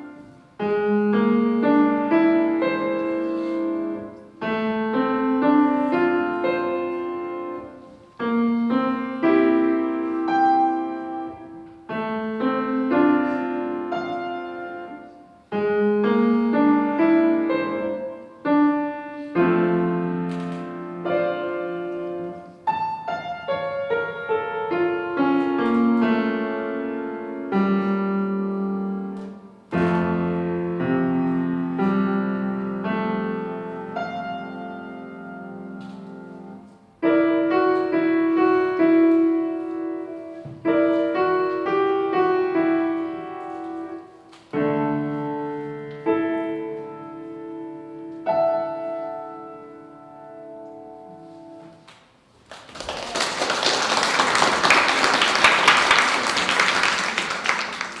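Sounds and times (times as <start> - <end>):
piano playing slow chords: 0.0 - 51.9
applause: 52.4 - 58.0.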